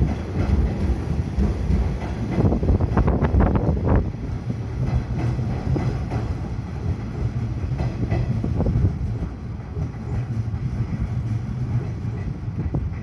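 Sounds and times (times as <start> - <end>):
train wheels rumbling on rail: 0.0 - 13.0
wheels clacking over rail joints: 0.0 - 13.0.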